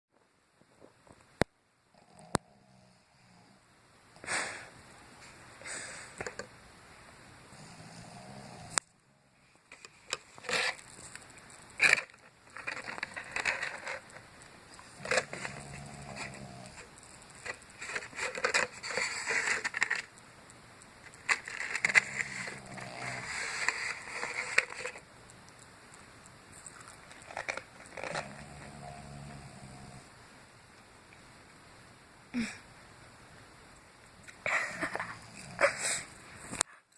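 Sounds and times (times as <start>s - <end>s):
dog snoring: 1.9s - 3.6s, 7.5s - 9.3s, 14.9s - 16.9s, 21.9s - 24.1s, 28.0s - 30.1s
crackly scraping noises: 5.2s - 6.5s, 7.4s - 30.1s, 34.1s - 36.9s.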